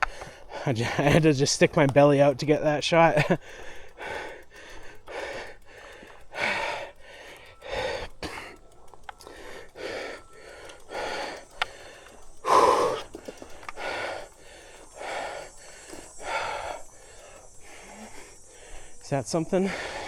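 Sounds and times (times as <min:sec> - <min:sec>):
person breathing hard: 0:00.0 - 0:20.0.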